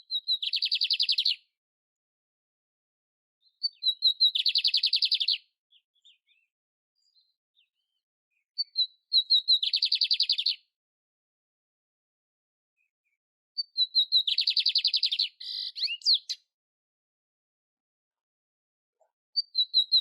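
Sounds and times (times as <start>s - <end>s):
canary singing trills: 0.0s - 1.4s, 3.4s - 8.0s, 8.6s - 10.7s, 13.6s - 16.5s, 19.4s - 20.0s.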